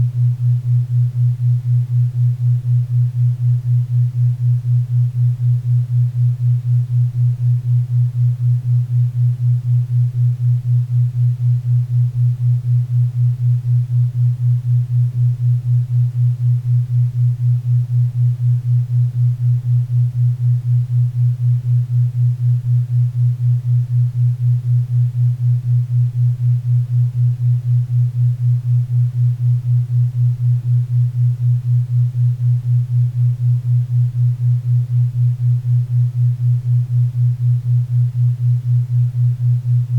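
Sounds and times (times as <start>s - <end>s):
low pulsing tone: 13.9s - 39.9s.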